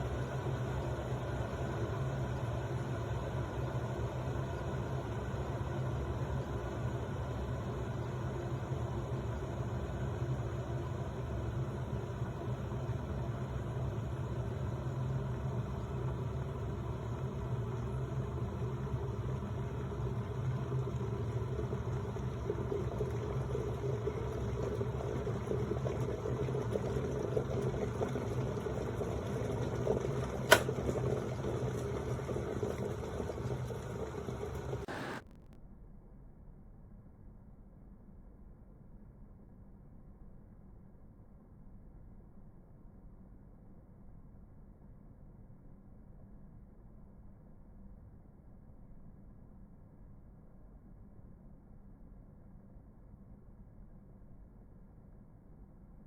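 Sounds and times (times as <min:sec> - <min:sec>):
electric kettle heating water: 0:00.0 - 0:35.4
kettle switch click: 0:30.5 - 0:30.8.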